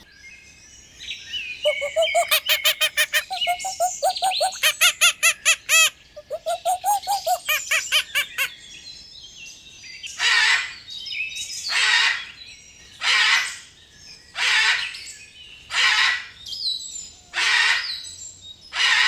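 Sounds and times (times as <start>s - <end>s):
small birds chirping: 1.5s - 8.5s
bird harsh rasping calls: 1.6s - 8.5s.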